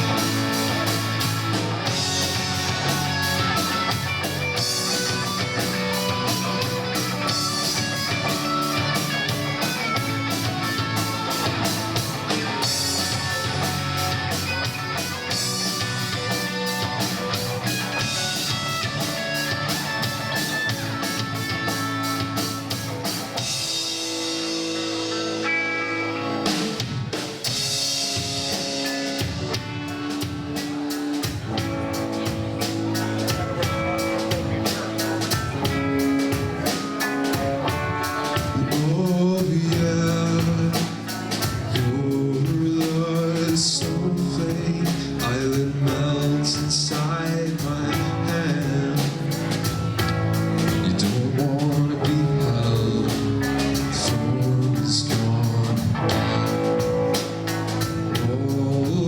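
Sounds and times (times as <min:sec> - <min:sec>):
drum kit: 0:00.0 - 0:59.0
electric guitar: 0:00.0 - 0:59.0
person singing: 0:37.7 - 0:49.6, 0:50.7 - 0:56.6, 0:58.1 - 0:59.0.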